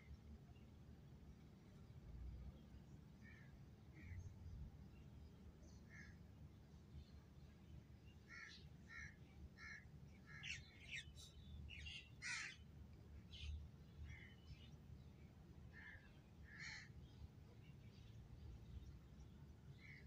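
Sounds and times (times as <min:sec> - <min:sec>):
low steady hum: 0:00.0 - 0:20.0
faint bird calls: 0:05.7 - 0:06.2, 0:08.2 - 0:12.6, 0:15.7 - 0:18.0, 0:19.7 - 0:20.0.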